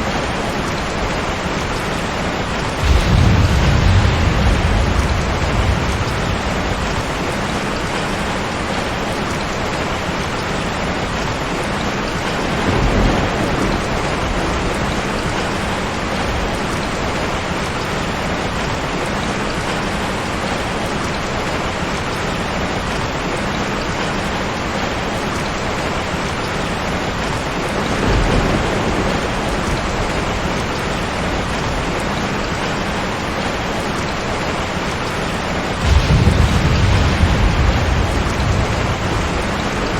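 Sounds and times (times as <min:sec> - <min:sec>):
heavy rain hissing: 0:00.0 - 0:39.9
low rumbles of thunder: 0:02.7 - 0:09.1, 0:12.3 - 0:17.4, 0:27.2 - 0:33.0, 0:35.8 - 0:39.9.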